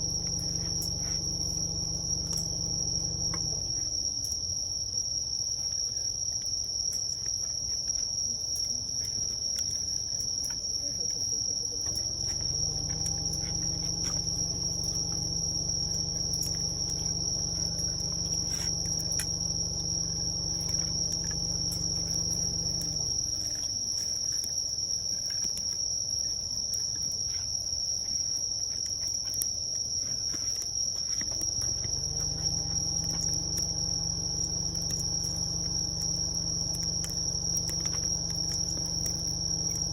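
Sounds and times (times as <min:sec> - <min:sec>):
low droning hum: 0:00.0 - 0:04.2, 0:11.9 - 0:23.9, 0:31.4 - 0:39.9
campfire crackling: 0:00.0 - 0:04.9, 0:05.6 - 0:39.9
crickets trilling: 0:00.0 - 0:39.9.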